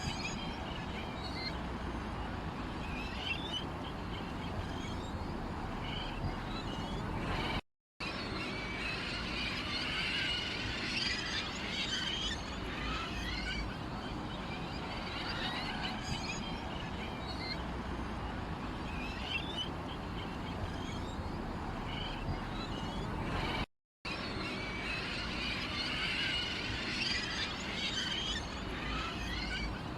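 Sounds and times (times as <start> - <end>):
small birds chirping: 2.6 - 7.6, 10.9 - 23.6.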